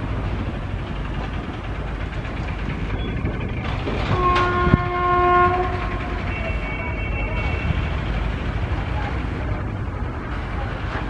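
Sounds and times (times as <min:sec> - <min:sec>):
train rumbling: 0:00.0 - 0:11.0
locomotive horn chord: 0:04.1 - 0:07.8.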